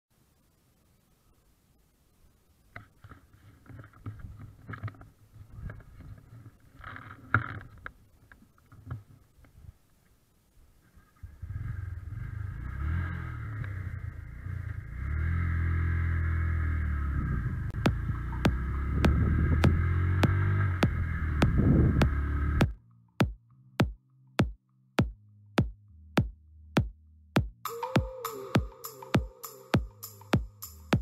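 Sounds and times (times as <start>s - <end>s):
motorcycle engine drone: 11.2s - 23.3s.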